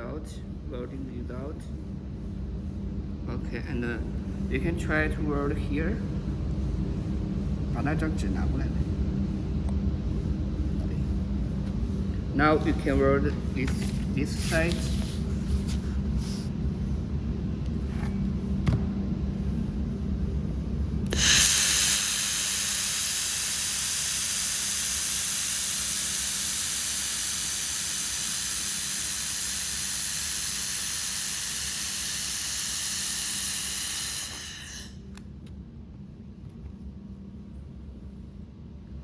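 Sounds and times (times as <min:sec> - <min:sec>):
compressed air hissing from nozzle: 0:12.8 - 0:16.9, 0:21.1 - 0:35.2.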